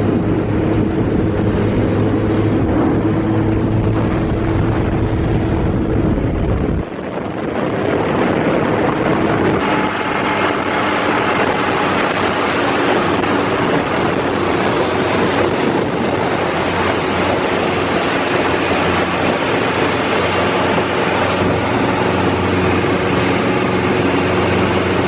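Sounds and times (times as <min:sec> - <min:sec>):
motorcycle engine running: 0:00.0 - 0:25.0
wind on microphone: 0:00.0 - 0:25.0.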